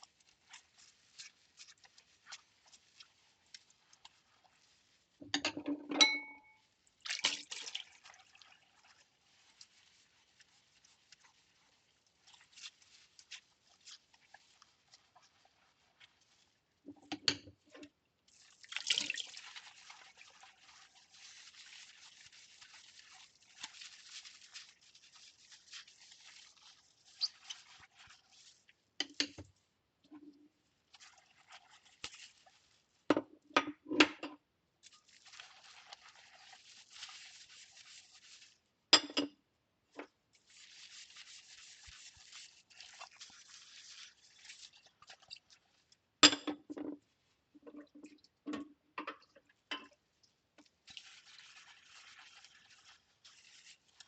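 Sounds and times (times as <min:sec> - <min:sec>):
soapy scrubbing of bowls: 0:00.0 - 0:05.4, 0:06.6 - 0:33.1, 0:34.8 - 0:38.9, 0:39.8 - 0:46.2, 0:46.8 - 0:54.0
ceramic clinks and knocks: 0:05.4 - 0:06.6.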